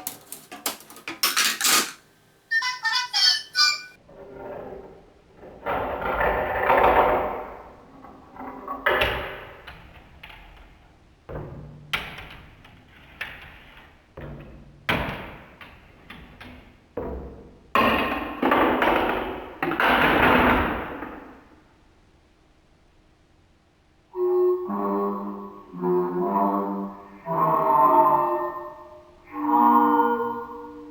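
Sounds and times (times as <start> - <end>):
marbles rolling down plastic run: 0.0 - 2.0.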